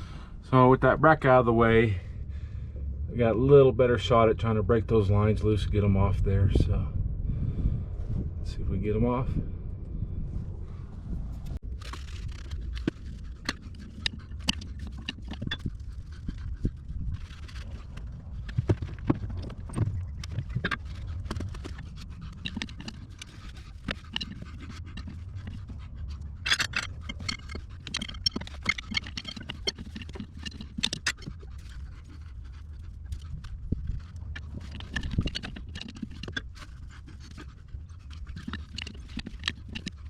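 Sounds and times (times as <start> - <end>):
low steady rumble: 0.0 - 40.0
hand tools clicking and scraping: 11.5 - 40.0.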